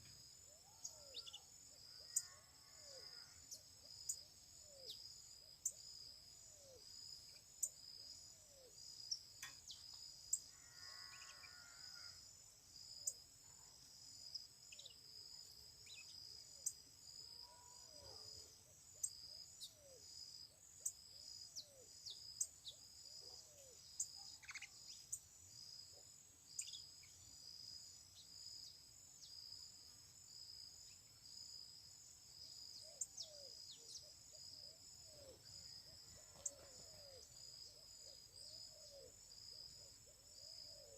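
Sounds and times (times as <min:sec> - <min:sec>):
insects chirping drone: 0:00.0 - 0:40.9
bird chirps: 0:00.8 - 0:01.5, 0:23.6 - 0:25.2.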